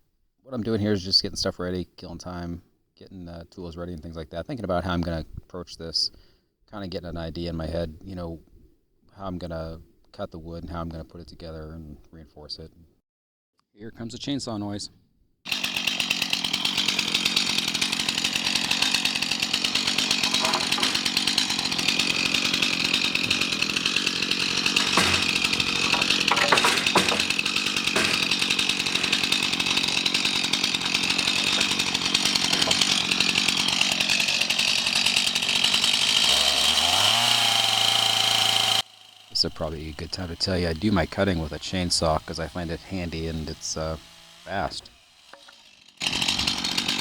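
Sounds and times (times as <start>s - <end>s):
chainsaw cutting wood: 15.5s - 47.0s.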